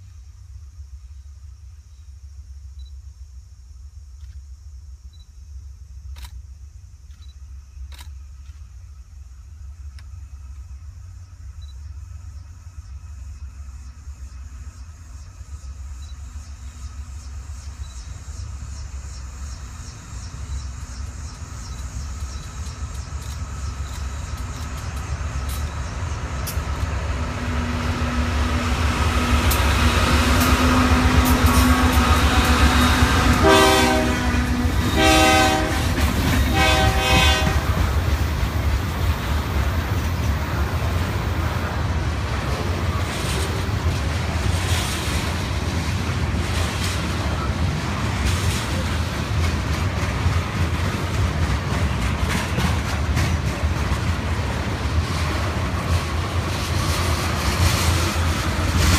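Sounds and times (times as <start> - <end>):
diesel locomotive engine rumble: 0.0 - 58.9
clicking train wheels: 6.0 - 58.9
train horn blasts: 30.2 - 38.0.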